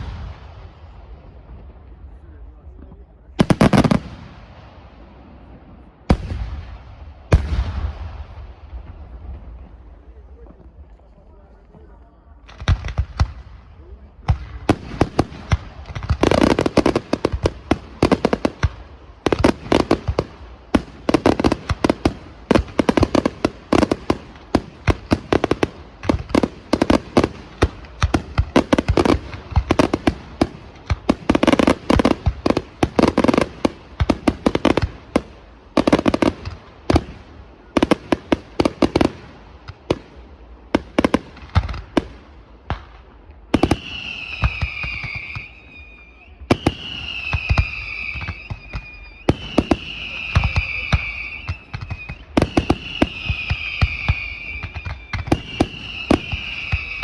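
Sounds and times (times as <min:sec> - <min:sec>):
fireworks bangs: 0:00.0 - 0:10.9, 0:11.8 - 0:57.0
high firework whistle: 0:43.6 - 0:57.0.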